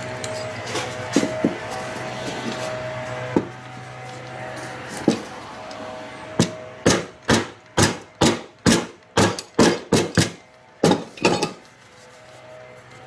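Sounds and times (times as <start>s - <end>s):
hammer knocking wooden parts: 6.4s - 11.5s.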